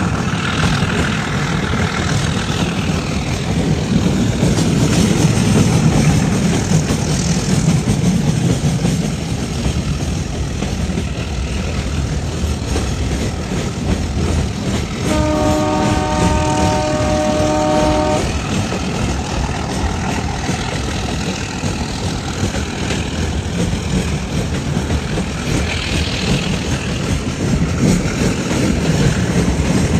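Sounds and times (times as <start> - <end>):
moving train rumble: 0.0 - 29.9
train horn: 15.0 - 18.6.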